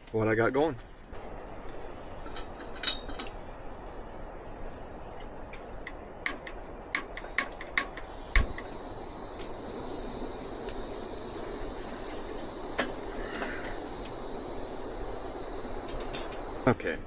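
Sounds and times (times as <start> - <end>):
steady low hiss: 0.0 - 17.0
metal cookware clinking: 6.3 - 8.6.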